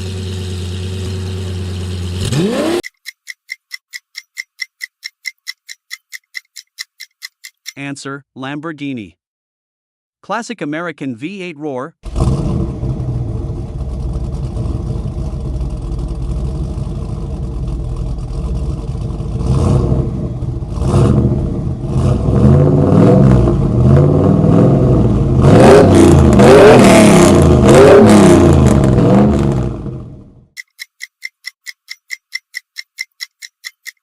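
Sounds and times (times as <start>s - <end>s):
engine idling and revving: 0.0s - 3.1s, 12.1s - 30.6s.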